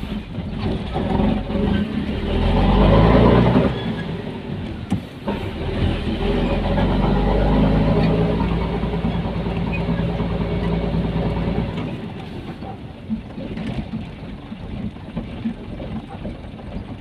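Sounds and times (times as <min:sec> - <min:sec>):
truck engine droning: 0:00.0 - 0:13.0
engine knocks and rattles: 0:00.0 - 0:17.0.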